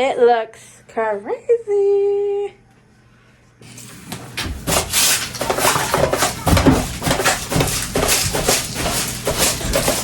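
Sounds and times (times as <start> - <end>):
rubbing and scraping: 4.7 - 10.0.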